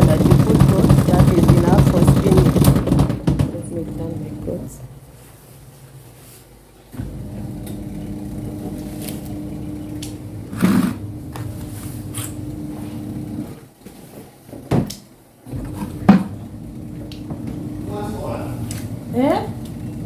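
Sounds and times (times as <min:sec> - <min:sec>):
loud knocks: 0:00.0 - 0:04.0
spin-dryer motor humming: 0:00.0 - 0:05.3, 0:06.8 - 0:13.7, 0:15.5 - 0:20.0.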